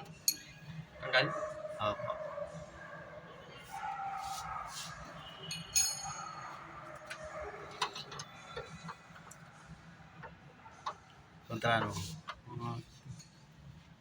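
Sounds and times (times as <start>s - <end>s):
metallic clinks of hand tools: 0.2s - 0.6s, 5.5s - 6.2s.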